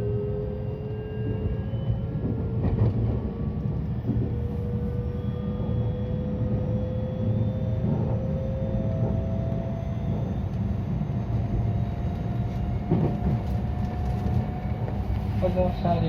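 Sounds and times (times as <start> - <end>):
traction motor whine: 0.0 - 16.0
train wheels rumbling on rails: 0.8 - 5.0, 7.6 - 16.0.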